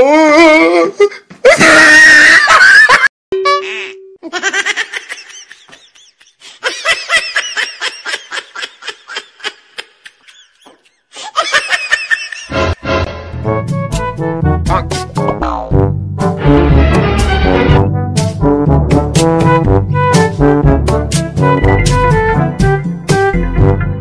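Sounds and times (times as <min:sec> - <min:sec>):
high giggling laughter: 0:02.2 - 0:12.5.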